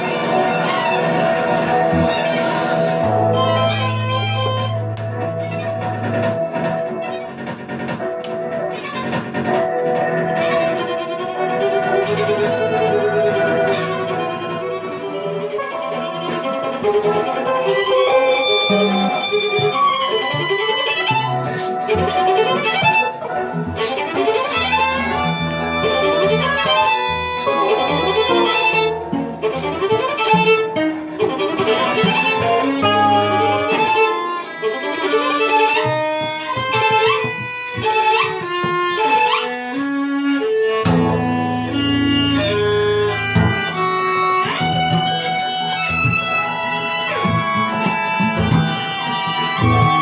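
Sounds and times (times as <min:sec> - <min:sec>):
violin playing: 0:00.0 - 0:09.1, 0:09.8 - 0:50.0
acoustic guitar playing: 0:00.0 - 0:50.0.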